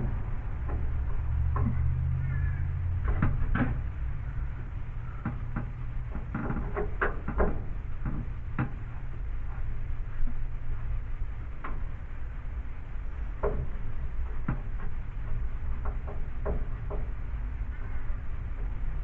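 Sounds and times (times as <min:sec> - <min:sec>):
hardware clicking and knocking: 0:03.0 - 0:04.0, 0:05.2 - 0:08.9, 0:13.4 - 0:15.0, 0:15.7 - 0:17.2.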